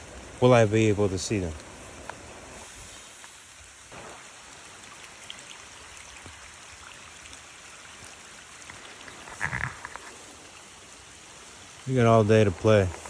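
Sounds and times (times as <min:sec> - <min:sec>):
creek water rushing: 0:00.0 - 0:13.0
rain falling: 0:00.0 - 0:13.0.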